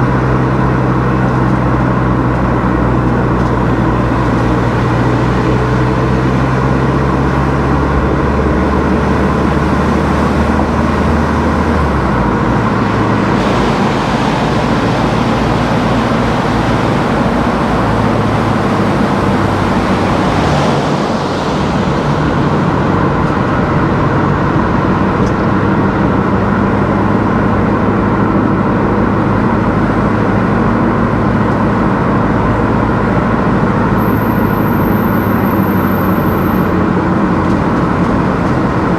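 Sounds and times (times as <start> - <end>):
car engine hum: 0.0 - 38.9
tyre and road noise: 0.0 - 38.9
brief rushing swell: 12.9 - 17.4.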